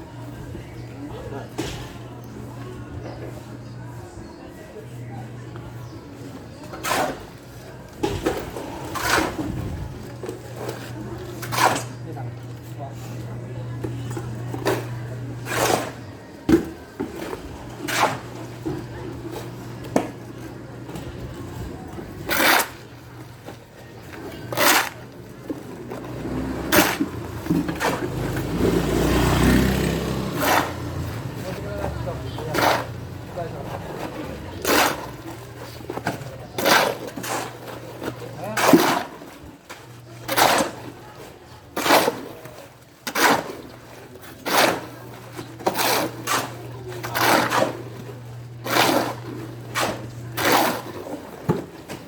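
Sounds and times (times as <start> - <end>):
scraping strokes: 24.3 - 25.2
engine running: 25.9 - 35.2.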